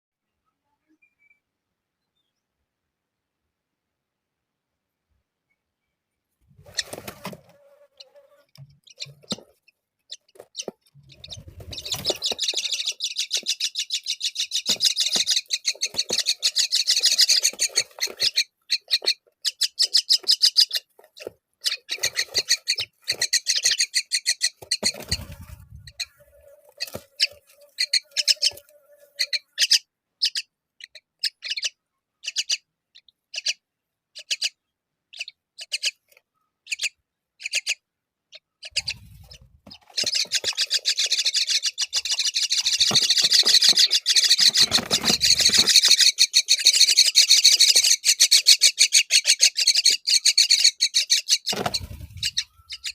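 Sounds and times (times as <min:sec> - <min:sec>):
nestlings begging chirps: 0:06.6 - 0:33.6, 0:38.6 - 0:52.9.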